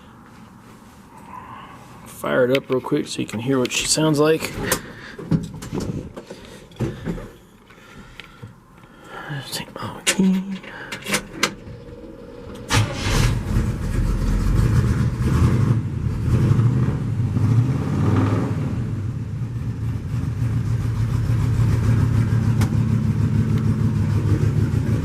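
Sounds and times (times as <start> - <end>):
car engine starting and idling: 10.3 - 25.0.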